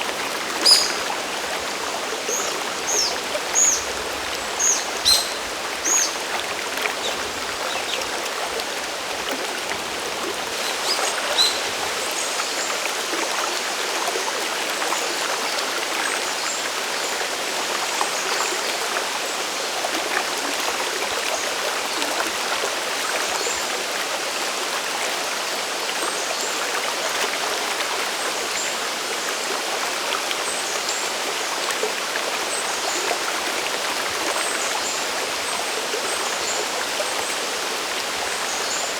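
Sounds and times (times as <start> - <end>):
waterfall rushing water: 0.0 - 14.3.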